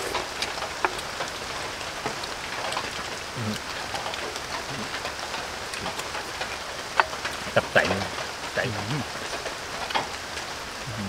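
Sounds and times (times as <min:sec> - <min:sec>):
drops ticking: 0:00.0 - 0:11.0
rain falling: 0:00.0 - 0:11.0.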